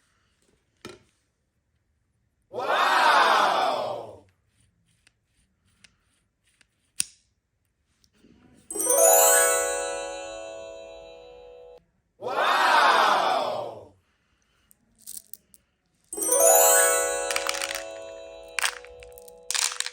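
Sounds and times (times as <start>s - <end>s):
crowd cheering: 2.6s - 4.0s, 12.3s - 13.7s, 16.2s - 19.9s
bright bell-like chime: 8.7s - 11.8s, 16.2s - 19.9s.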